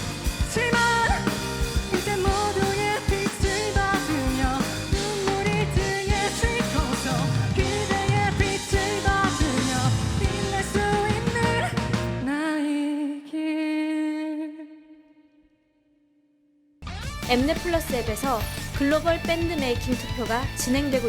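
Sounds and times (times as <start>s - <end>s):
rock band playing: 0.0s - 12.3s, 16.8s - 21.0s.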